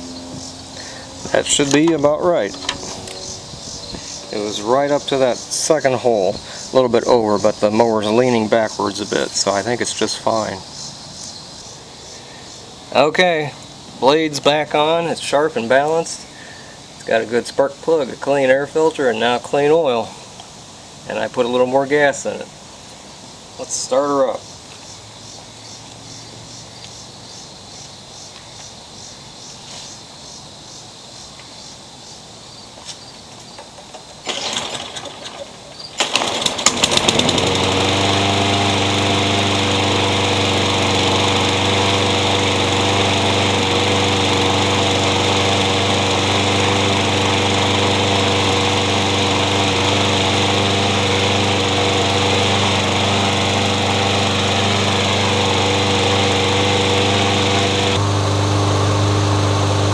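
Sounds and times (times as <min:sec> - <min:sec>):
starter noisy burst: 0:00.0 - 0:10.6, 0:34.2 - 0:35.4, 0:36.0 - 0:59.9
lawn mower engine running: 0:00.0 - 0:11.2, 0:34.2 - 0:59.9.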